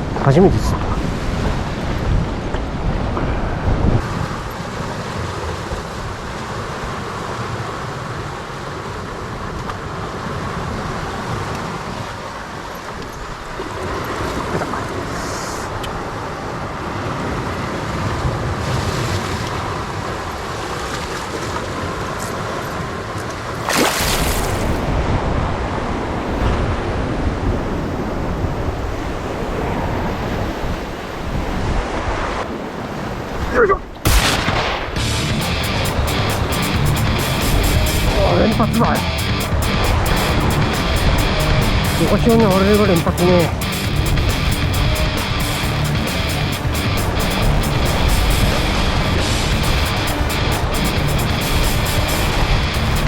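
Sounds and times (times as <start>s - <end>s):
wind buffeting microphone: 0.0s - 12.0s, 24.4s - 35.0s
waves washing against rocks: 3.8s - 35.0s.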